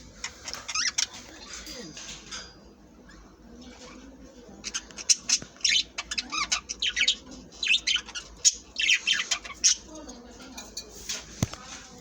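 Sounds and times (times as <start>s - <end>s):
budgerigars chirping and squawking: 0.0s - 2.2s, 3.1s - 10.2s.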